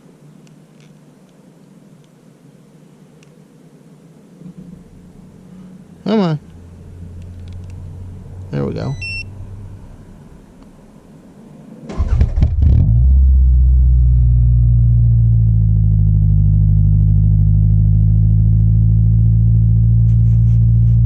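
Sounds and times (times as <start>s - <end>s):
car engine starting and idling: 11.8s - 21.0s.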